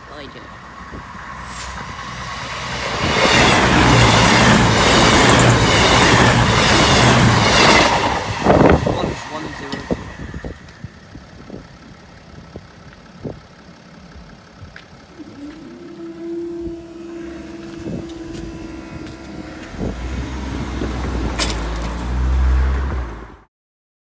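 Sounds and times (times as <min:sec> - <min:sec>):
train engine and wheel rumble: 0:00.0 - 0:23.5
steady droning tone: 0:15.0 - 0:21.4.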